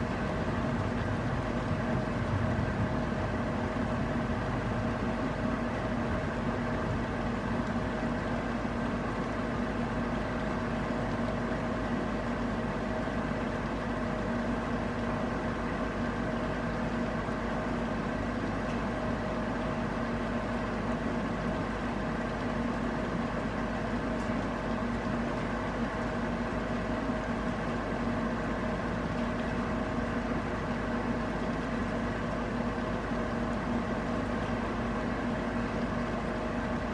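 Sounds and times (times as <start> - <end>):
constant hum: 0.0 - 36.9.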